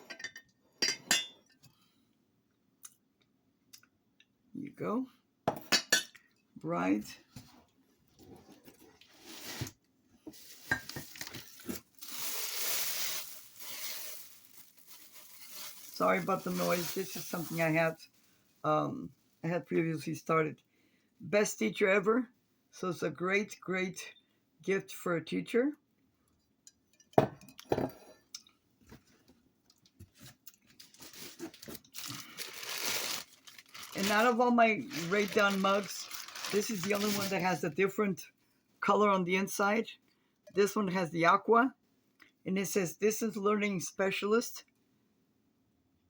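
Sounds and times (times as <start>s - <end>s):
rustling: 7.4s - 18.5s, 30.1s - 37.5s
ceramic mugs handled: 10.3s - 11.8s
wrapping material crinkling: 10.3s - 18.5s, 29.7s - 37.6s
mugs clinking: 10.7s - 11.0s.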